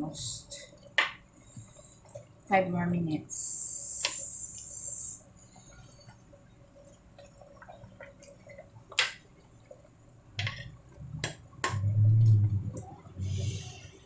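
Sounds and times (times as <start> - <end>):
high hiss: 3.3 - 5.2
faint water drips: 3.4 - 14.0.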